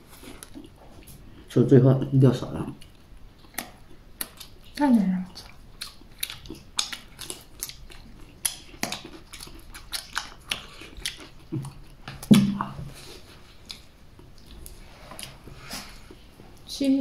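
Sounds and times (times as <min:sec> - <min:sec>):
chewing and biting flatbread: 0:02.7 - 0:16.3
mouth clicks and smacks: 0:02.8 - 0:12.9.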